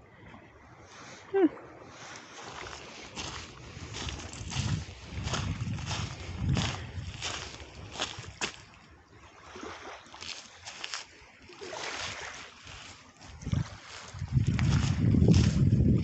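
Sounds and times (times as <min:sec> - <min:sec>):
footsteps crunching on trail: 0:02.1 - 0:08.8, 0:10.2 - 0:15.9
wind buffeting microphone: 0:02.4 - 0:09.1, 0:12.0 - 0:16.0.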